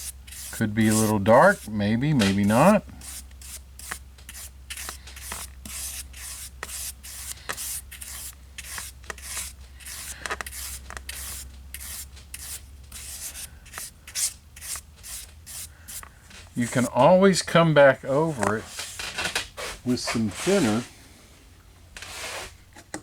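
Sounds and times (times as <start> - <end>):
scratchy paintbrush strokes: 0.0 - 17.2
steady low hum: 0.0 - 22.0.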